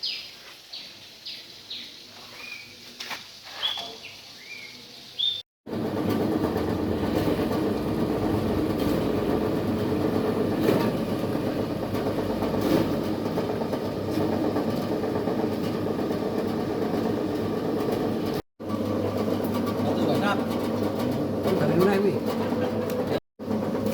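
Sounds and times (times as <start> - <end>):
shredding machine drone: 5.7 - 23.9.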